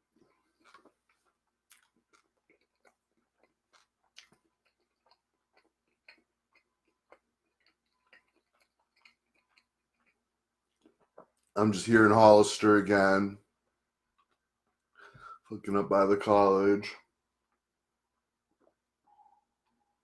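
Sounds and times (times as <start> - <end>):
wet mouth chewing clicks: 0.5 - 11.5.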